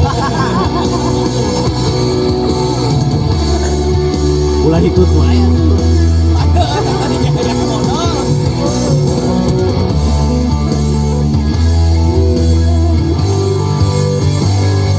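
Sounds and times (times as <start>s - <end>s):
rock music with guitar and bass: 0.0s - 14.9s.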